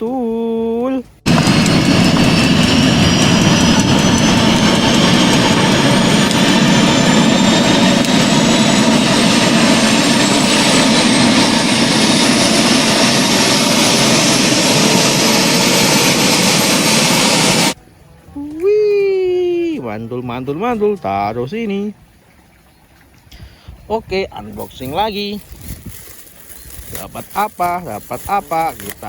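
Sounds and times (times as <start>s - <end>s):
jet engine spooling up: 1.3s - 17.8s.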